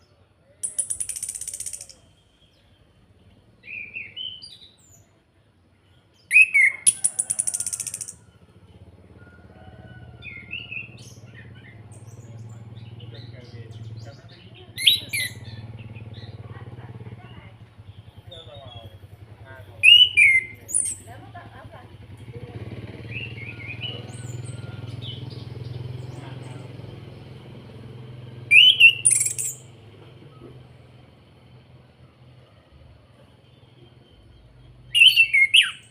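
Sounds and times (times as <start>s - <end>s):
bird whistled notes: 0.6s - 2.1s, 6.3s - 8.2s, 19.8s - 21.0s, 28.5s - 29.6s, 34.9s - 35.9s
bird chirping: 0.6s - 5.2s, 5.8s - 8.4s, 10.2s - 16.4s, 17.2s - 21.2s, 28.5s - 29.7s, 33.5s - 35.9s
low engine hum: 6.7s - 35.9s.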